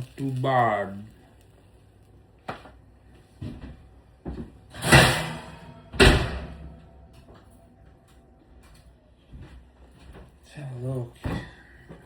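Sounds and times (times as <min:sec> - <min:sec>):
kitchen items knocking and thudding: 0:04.3 - 0:06.9.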